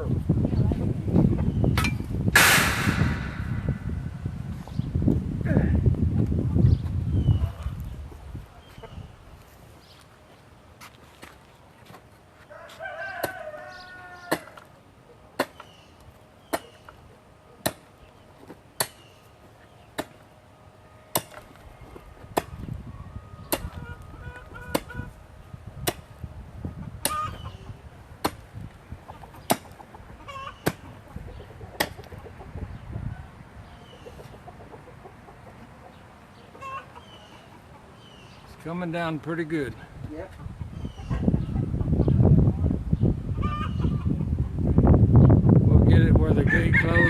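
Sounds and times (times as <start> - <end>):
chickens clucking: 0.6 - 1.8, 6.1 - 10.0, 21.9 - 25.3, 25.9 - 38.8, 39.7 - 44.8
sharp knocks: 1.8 - 4.0
rooster crowing: 12.5 - 14.6, 46.5 - 47.0.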